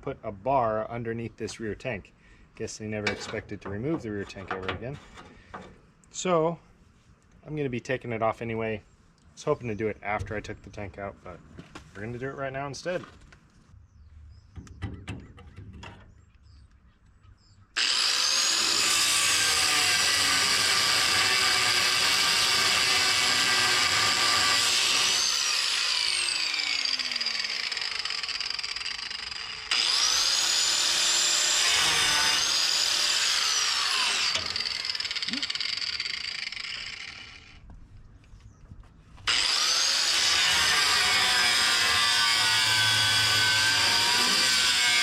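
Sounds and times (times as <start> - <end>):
power saw cutting steel: 17.8 - 37.6, 39.3 - 45.0.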